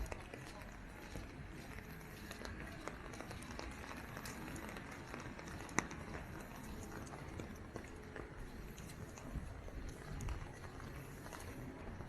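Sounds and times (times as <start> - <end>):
footsteps on wet pavement: 0.0 - 12.0
wind rumble on microphone: 8.4 - 12.0.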